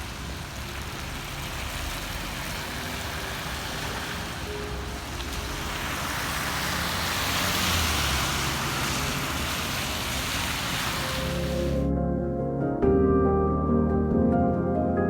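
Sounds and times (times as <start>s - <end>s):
tyres hissing on wet road: 0.0s - 11.9s.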